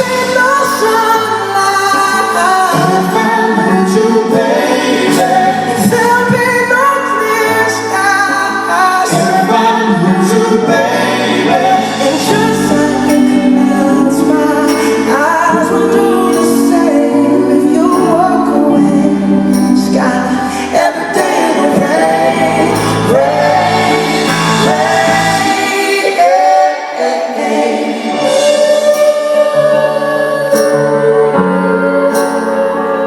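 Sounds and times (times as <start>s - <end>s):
band playing sustained chords: 0.0s - 33.0s
low bass: 10.8s - 20.9s.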